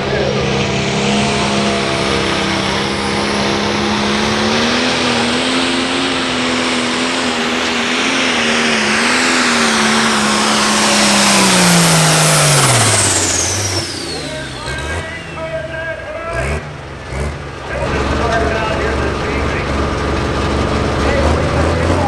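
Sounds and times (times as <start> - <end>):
high turbo whistle: 0.0 - 15.8
diesel tractor engine under load: 0.0 - 22.0.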